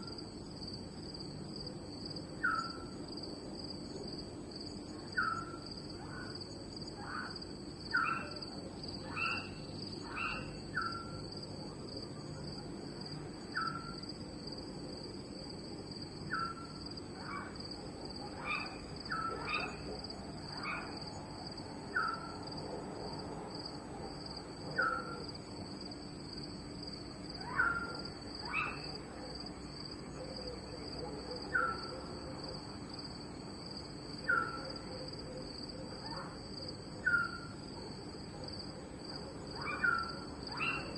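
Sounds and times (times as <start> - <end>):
crickets trilling: 0.0 - 40.9
animal chirping call: 39.6 - 40.9.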